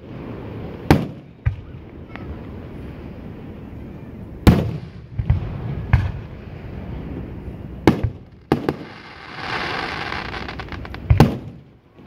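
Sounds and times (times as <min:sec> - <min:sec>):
fireworks booming: 0:04.4 - 0:11.8.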